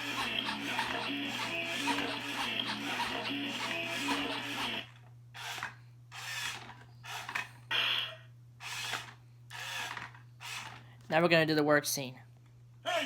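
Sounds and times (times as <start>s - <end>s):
toy dance tune: 0.0s - 4.8s
plastic toy truck scraping: 0.0s - 7.5s.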